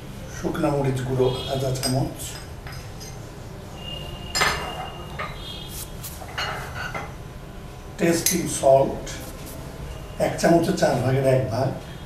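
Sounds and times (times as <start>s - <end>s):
metal spoon clinking against bowl: 1.8s - 3.2s.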